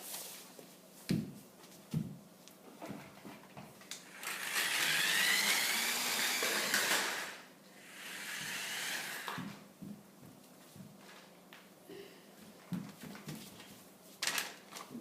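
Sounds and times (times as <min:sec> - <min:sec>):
toy car motor whining: 0:04.1 - 0:09.4.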